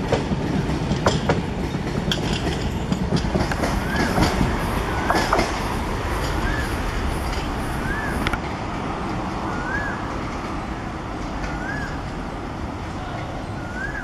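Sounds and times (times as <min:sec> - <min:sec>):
train wheels rumbling on track: 0:00.0 - 0:14.0
rising-and-falling call: 0:03.6 - 0:08.4.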